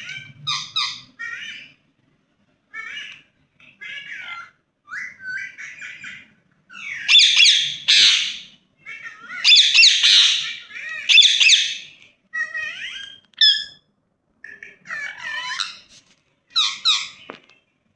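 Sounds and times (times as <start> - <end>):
parrot chattering: 0.0 - 1.8, 2.7 - 13.8, 14.5 - 15.9, 16.5 - 17.3
parrot harsh squawks: 0.0 - 1.8, 3.8 - 13.8, 14.8 - 15.9, 16.5 - 17.3.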